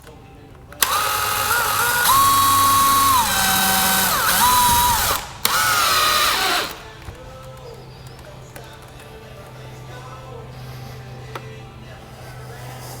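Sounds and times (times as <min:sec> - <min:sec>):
power drill motor running: 0:00.8 - 0:08.2.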